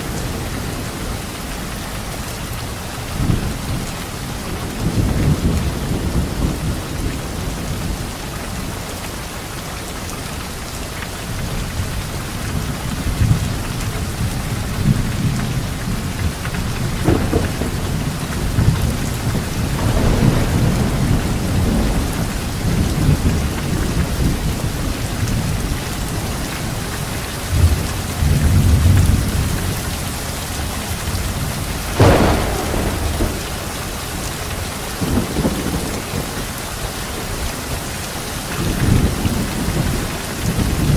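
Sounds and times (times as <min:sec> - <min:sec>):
rain falling on leaves: 0:00.0 - 0:40.9
thunder rumbling: 0:03.2 - 0:08.6, 0:11.2 - 0:38.0
sharp thunderclap: 0:14.7 - 0:25.4, 0:31.1 - 0:36.6.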